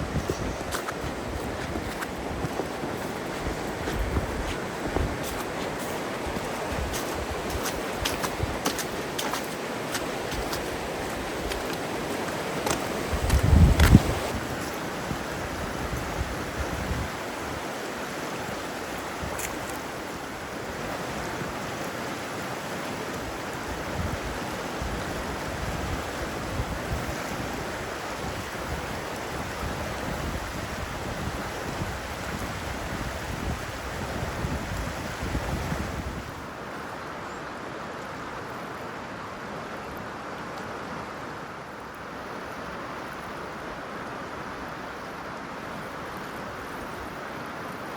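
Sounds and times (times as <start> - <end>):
wind gusting on microphone: 0.0 - 19.8, 23.2 - 36.6
river water rushing: 0.0 - 47.9.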